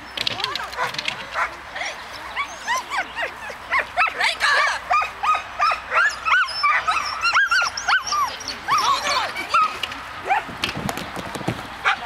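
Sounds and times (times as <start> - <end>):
dog yipping: 2.4 - 10.5.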